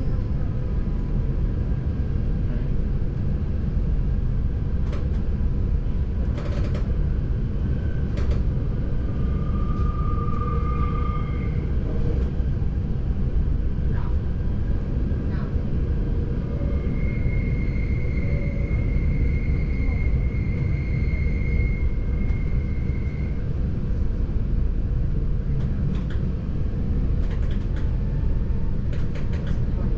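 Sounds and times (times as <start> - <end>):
train rumbling on rails: 0.0 - 29.9
thin steady squeal: 8.9 - 12.2, 16.4 - 23.5.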